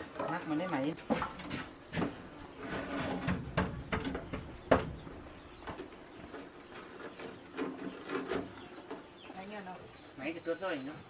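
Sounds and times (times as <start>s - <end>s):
knocks and clatter of handling: 1.0s - 9.1s.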